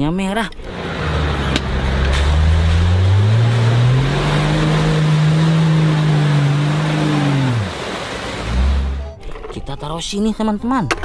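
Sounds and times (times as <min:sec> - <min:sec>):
suv engine revving: 0:00.6 - 0:09.1
constant rushing noise: 0:00.7 - 0:09.1.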